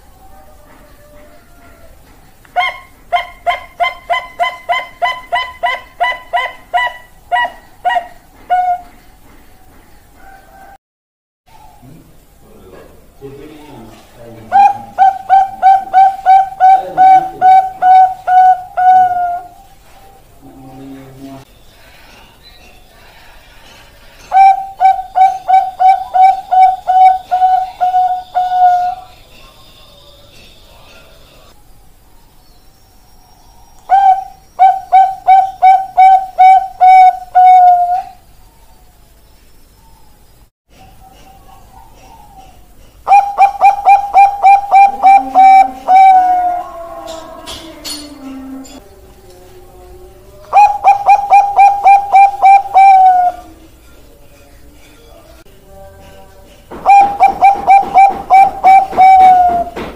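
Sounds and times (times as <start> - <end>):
dove cooing: 2.6 - 9.1, 14.4 - 21.0, 24.3 - 29.1, 33.9 - 38.2, 40.8 - 53.7, 56.7 - 59.9.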